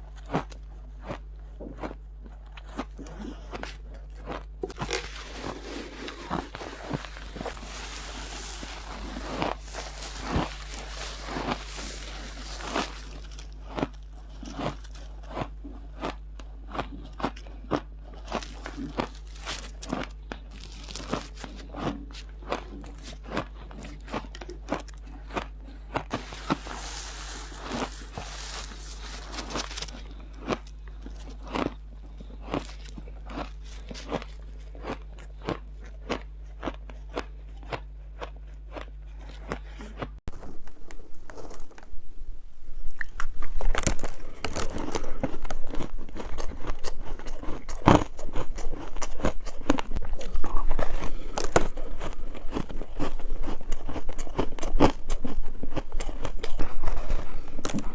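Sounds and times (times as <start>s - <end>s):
person chewing ice: 0.0s - 41.8s, 42.8s - 57.9s
steady low hum: 0.0s - 57.9s.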